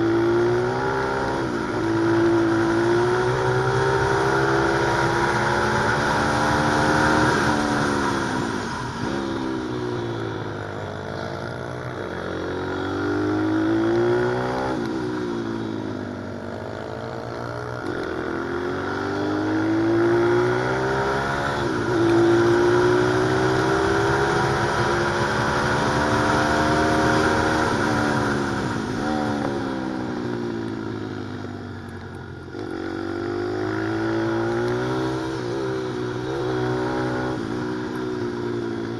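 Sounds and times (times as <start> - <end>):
motorbike engine accelerating: 0.0 - 38.9.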